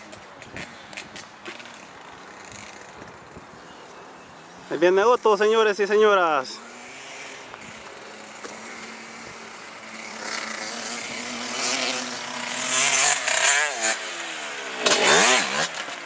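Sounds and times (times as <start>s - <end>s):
dirt bike engine revving: 5.4s - 16.0s.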